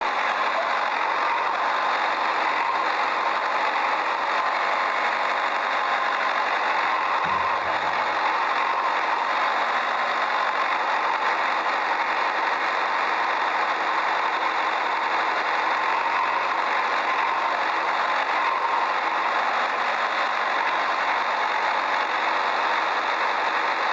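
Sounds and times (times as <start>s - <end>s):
engine-like running noise: 0.0s - 23.9s
low thump: 7.2s - 7.9s.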